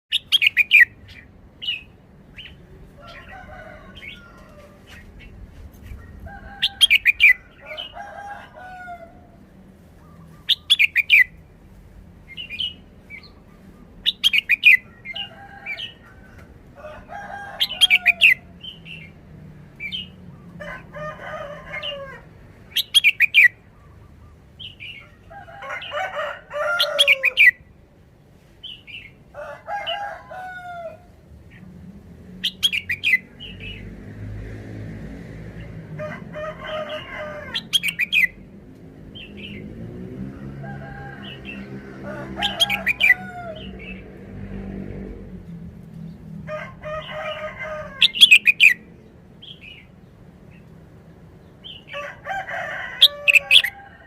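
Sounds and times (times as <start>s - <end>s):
soft bird warbling calls: 47.9s - 48.8s.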